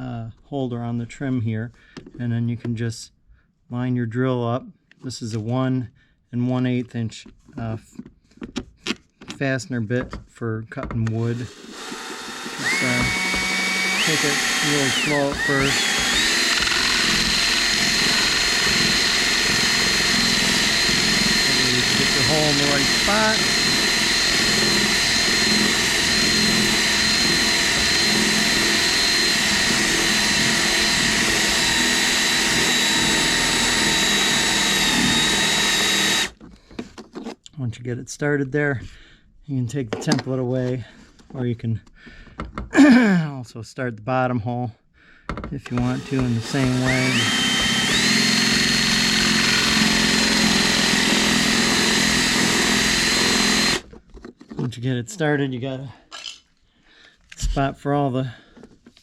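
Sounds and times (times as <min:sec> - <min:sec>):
drill bit cutting: 0:11.3 - 0:36.4, 0:45.7 - 0:53.9
power drill motor whine: 0:11.3 - 0:36.4, 0:45.7 - 0:53.9.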